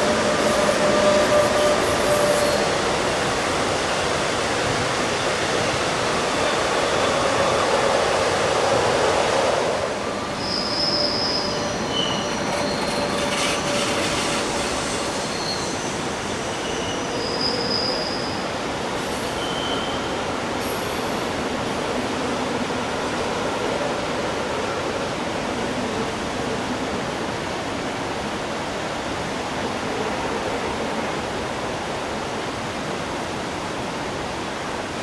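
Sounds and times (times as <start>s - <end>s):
train wheels squealing: 0.0s - 3.4s, 5.7s - 8.1s, 10.2s - 22.0s
train rumble: 0.0s - 35.0s.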